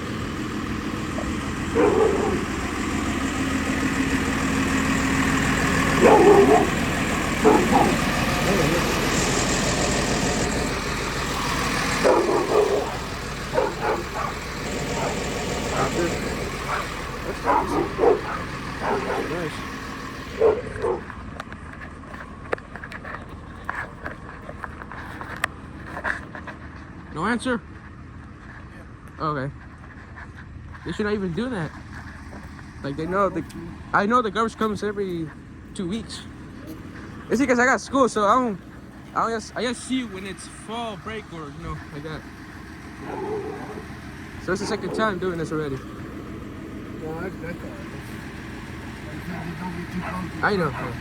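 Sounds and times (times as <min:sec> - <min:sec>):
garbage truck engine running: 0:00.0 - 0:27.1, 0:29.6 - 0:51.0
dog barking: 0:01.0 - 0:03.0, 0:05.5 - 0:09.5, 0:11.3 - 0:21.2, 0:33.0 - 0:33.5, 0:43.0 - 0:45.5, 0:49.1 - 0:51.0.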